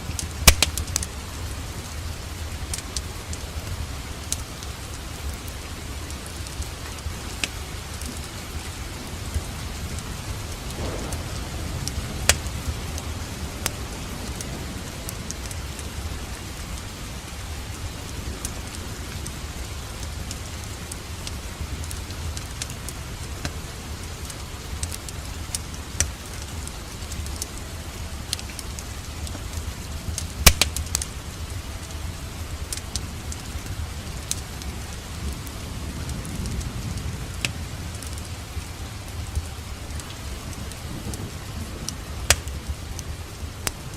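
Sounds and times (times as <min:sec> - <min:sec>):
steady rain: 0:00.0 - 0:43.9
wood fire crackling: 0:00.0 - 0:43.9
low rumble: 0:09.0 - 0:24.8.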